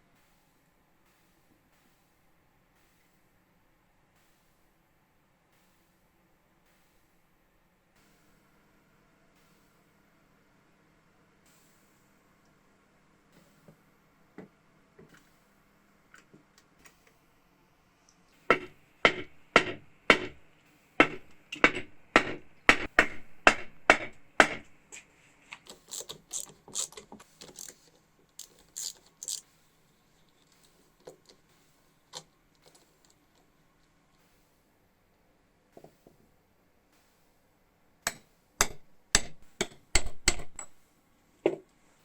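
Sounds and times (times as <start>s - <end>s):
sharp knocks: 18.5s - 20.4s, 21.0s - 24.7s.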